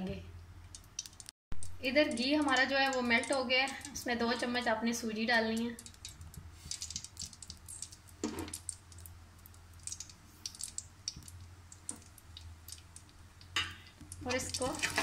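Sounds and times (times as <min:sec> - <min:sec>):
low steady hum: 0:00.0 - 0:15.0
semolina crackling in ghee: 0:00.0 - 0:15.0.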